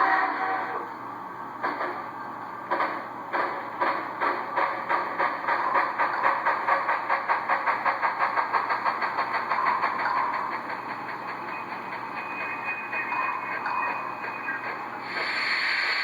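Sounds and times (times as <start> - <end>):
steady steam sound: 1.6 - 16.0
model steam locomotive exhaust chuffs: 2.7 - 13.4, 14.1 - 16.0.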